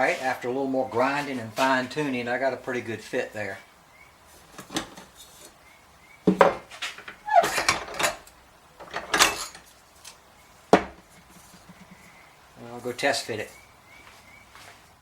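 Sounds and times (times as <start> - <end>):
metal pipes clanking together: 6.3 - 9.7.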